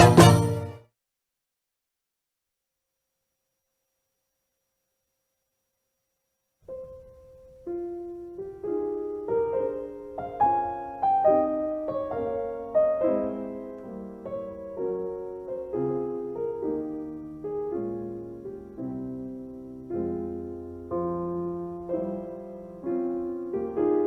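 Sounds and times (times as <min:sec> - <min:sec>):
slow gentle piano music: 0:06.6 - 0:24.0.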